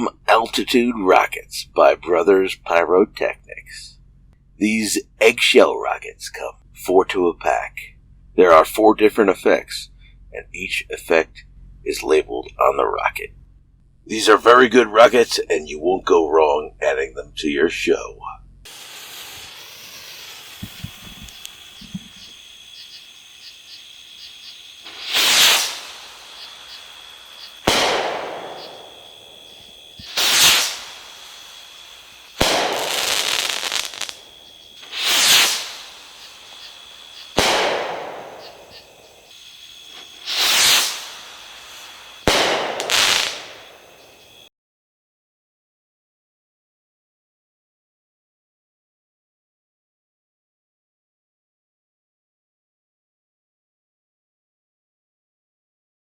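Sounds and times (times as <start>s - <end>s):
firework bang: 18.7s - 22.5s, 24.8s - 44.4s
crackling hiss: 18.7s - 44.5s
firework rocket whoosh: 18.7s - 44.5s.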